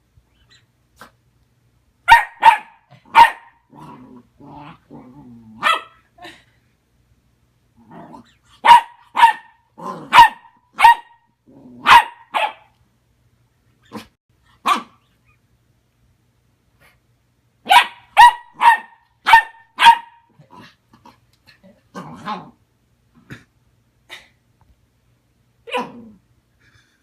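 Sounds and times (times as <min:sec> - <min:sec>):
puppy barking: 0:02.1 - 0:03.6, 0:05.6 - 0:06.0, 0:08.6 - 0:11.2, 0:11.8 - 0:12.7, 0:14.6 - 0:15.0, 0:17.6 - 0:20.3.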